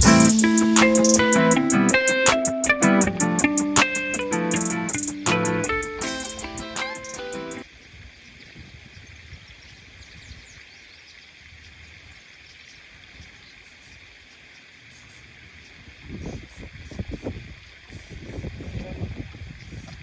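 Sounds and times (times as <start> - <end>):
steady hiss: 0.0 - 8.4
wind rumble on microphone: 7.6 - 10.6, 15.3 - 20.0.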